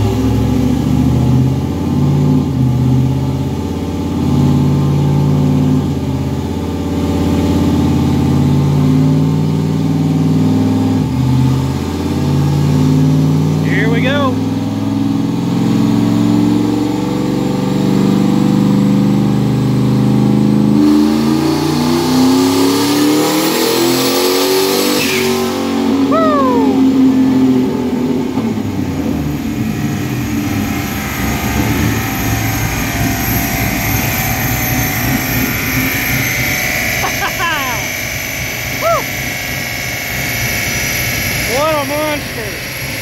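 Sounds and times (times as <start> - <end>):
car engine on dyno: 0.0 - 43.0
turbo whine: 25.0 - 43.0.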